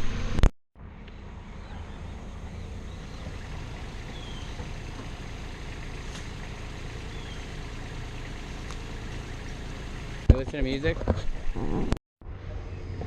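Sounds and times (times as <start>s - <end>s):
heavy engine idling: 1.0s - 10.3s.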